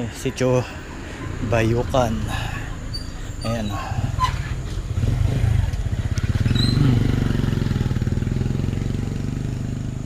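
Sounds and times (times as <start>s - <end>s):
small motorcycle engine running: 4.8s - 10.0s.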